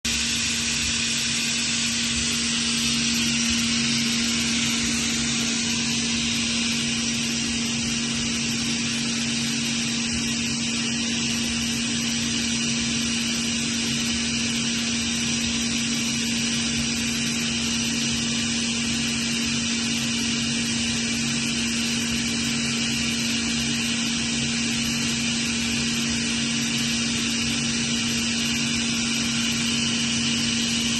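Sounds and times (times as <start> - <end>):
air compressor humming and hissing: 0.0 - 30.9.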